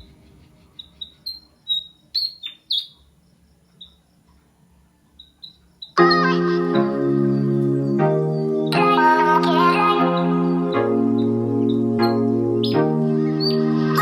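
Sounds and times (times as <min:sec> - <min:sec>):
small bird chirping: 0:00.0 - 0:14.0
background music: 0:06.0 - 0:14.0.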